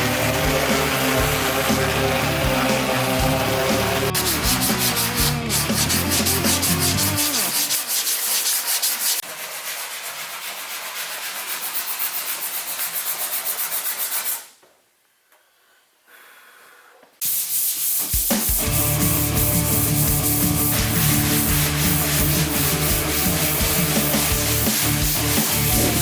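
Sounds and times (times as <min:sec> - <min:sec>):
music: 0:00.0 - 0:07.8, 0:18.0 - 0:26.0
sanding car body panel: 0:00.2 - 0:14.4, 0:17.2 - 0:26.0.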